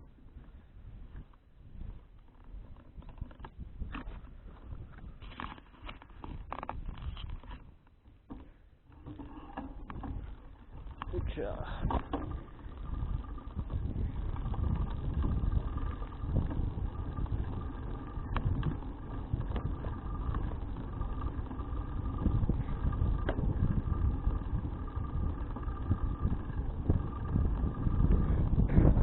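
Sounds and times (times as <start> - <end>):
faint steady whine: 0.0 - 29.0
wind rushing over microphone: 9.8 - 29.0.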